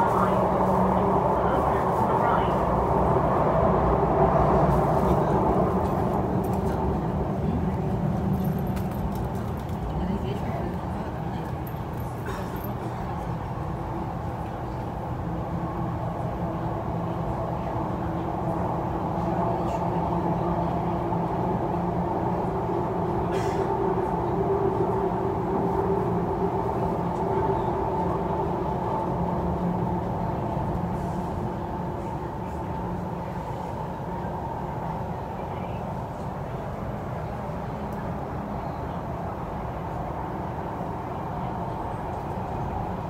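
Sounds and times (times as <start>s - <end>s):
electric train droning: 0.0s - 43.0s.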